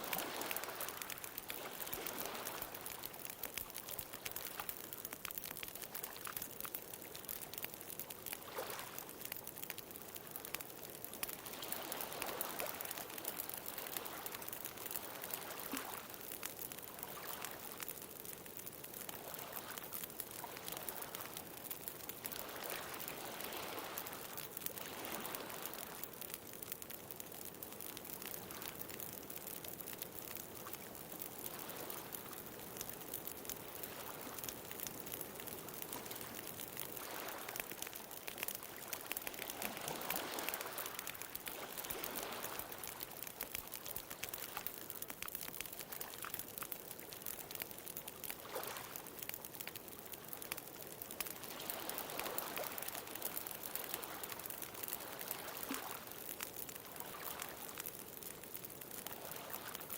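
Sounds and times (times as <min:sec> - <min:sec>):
bonfire crackling and popping: 0:00.0 - 0:59.9.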